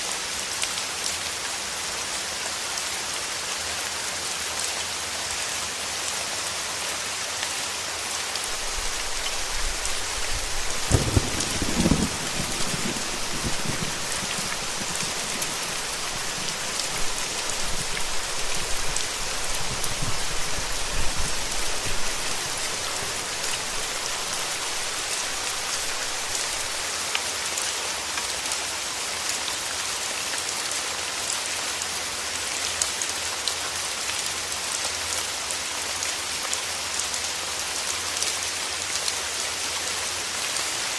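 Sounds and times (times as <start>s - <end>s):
rain hissing: 8.3s - 27.4s
thunder rolling: 8.5s - 26.8s.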